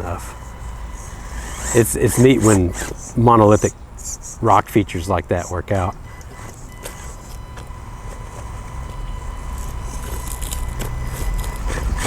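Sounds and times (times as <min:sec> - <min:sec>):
electric motor and gears whining: 0:00.0 - 0:12.0
tyres scraping on stone: 0:00.0 - 0:12.0.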